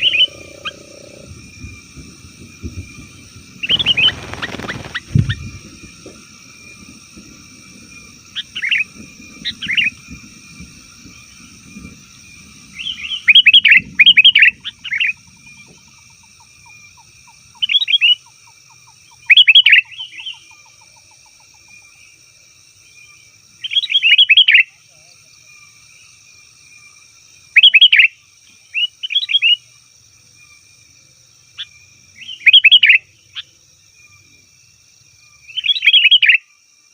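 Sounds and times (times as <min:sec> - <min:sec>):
bulbul chattering calls: 0:00.0 - 0:01.3
high-pitched ringing tone: 0:00.0 - 0:01.6.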